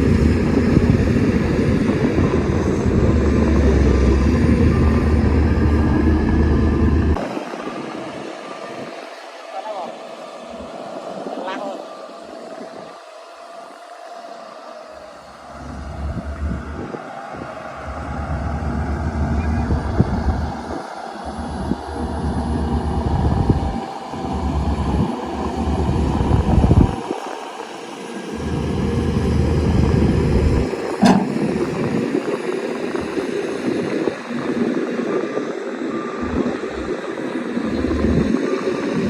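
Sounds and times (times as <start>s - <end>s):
bulldozer diesel engine under load: 0.0s - 7.9s, 15.5s - 27.4s, 28.3s - 34.8s, 35.8s - 39.0s
sharp knock: 31.0s - 31.5s.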